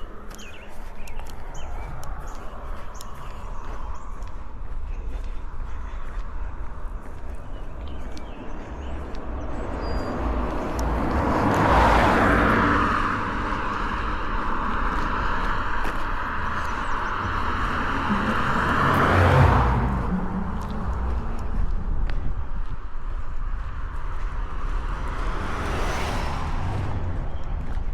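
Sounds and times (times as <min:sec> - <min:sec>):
car passing on paved road: 0:00.0 - 0:27.9.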